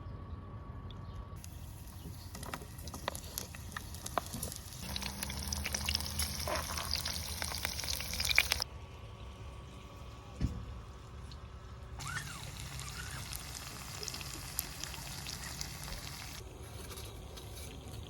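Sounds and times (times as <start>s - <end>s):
food sizzling in a frying pan: 2.8s - 8.6s, 12.0s - 16.4s.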